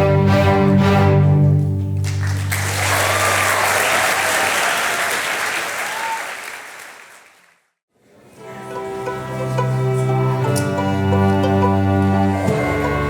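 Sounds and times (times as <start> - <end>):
audience applause: 2.0 - 7.6
string orchestra chord: 8.4 - 13.0.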